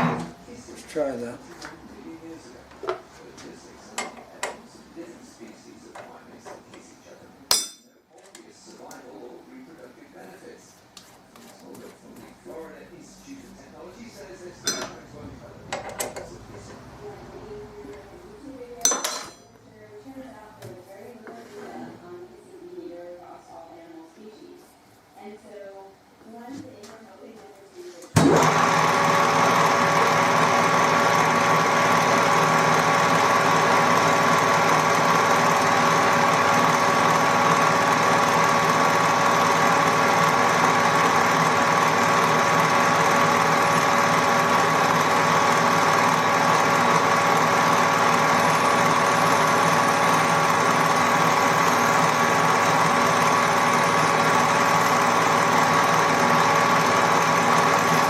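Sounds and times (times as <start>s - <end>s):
lathe gear whine: 28.2s - 58.0s.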